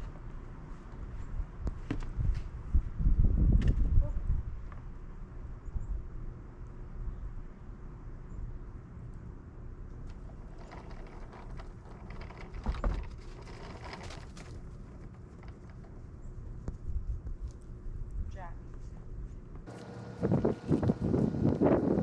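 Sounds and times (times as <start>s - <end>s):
crackly scraping with knocks: 10.0s - 17.7s
snowblower engine running: 19.7s - 22.0s.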